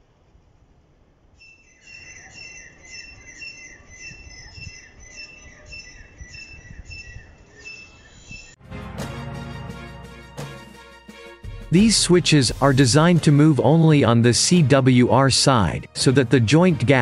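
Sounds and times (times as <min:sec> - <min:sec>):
bird chirping: 0:01.4 - 0:08.6.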